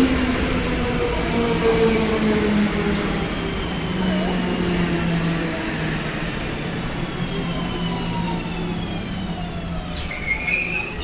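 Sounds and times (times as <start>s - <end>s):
loud high squeal: 9.8s - 11.0s.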